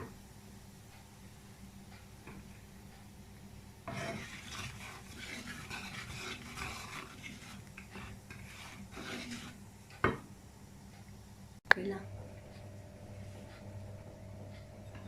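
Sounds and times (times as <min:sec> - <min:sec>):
seeds sizzling in hot oil: 0:03.8 - 0:09.7.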